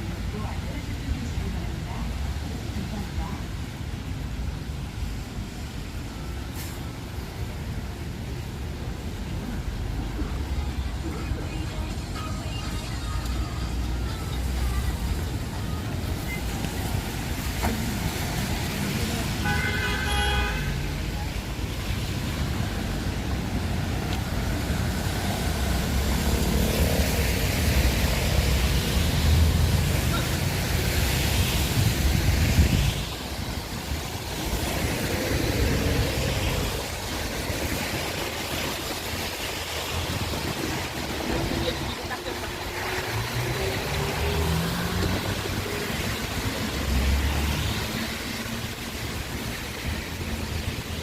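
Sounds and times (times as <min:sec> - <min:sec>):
traffic on a wet road: 0:00.0 - 0:51.0
car horn: 0:19.3 - 0:20.8
wind buffeting microphone: 0:31.2 - 0:42.1.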